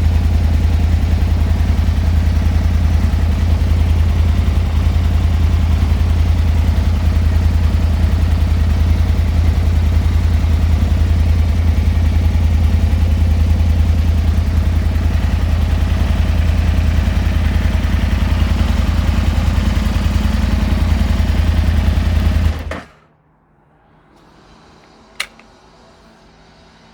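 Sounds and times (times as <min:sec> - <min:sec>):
motorcycle engine idling: 0:00.0 - 0:22.8
sharp click: 0:24.8 - 0:25.6.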